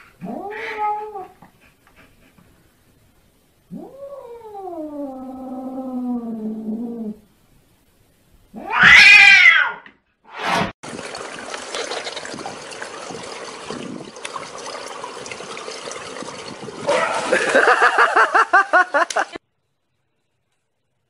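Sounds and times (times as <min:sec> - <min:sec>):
cat yowling: 0:00.2 - 0:01.4, 0:08.6 - 0:09.9
swimming pool water washing: 0:10.8 - 0:19.4.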